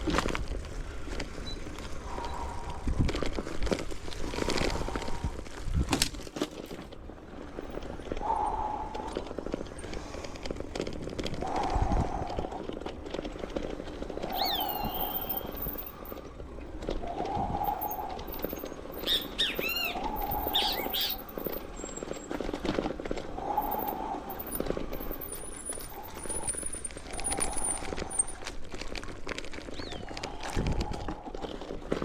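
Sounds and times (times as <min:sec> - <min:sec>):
bicycle clicking and rattling: 0:00.0 - 0:32.0
birds calling: 0:14.3 - 0:16.0, 0:17.1 - 0:22.2.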